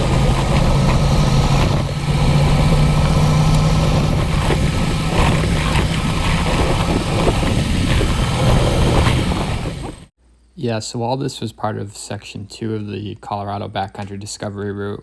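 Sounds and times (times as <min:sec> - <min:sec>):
knocks and rattles: 0:00.0 - 0:10.1
motorcycle engine running: 0:00.0 - 0:10.1.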